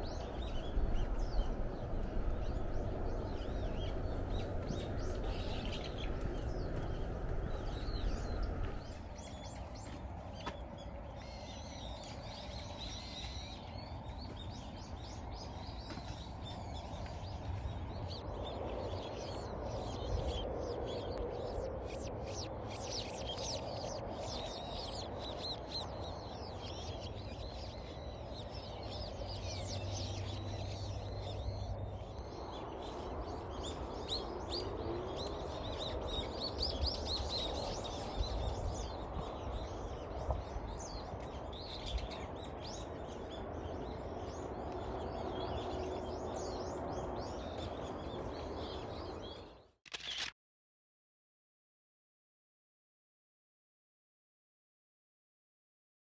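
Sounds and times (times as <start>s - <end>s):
low outdoor rumble: 0.0s - 13.1s
small birds chirping: 0.0s - 50.3s.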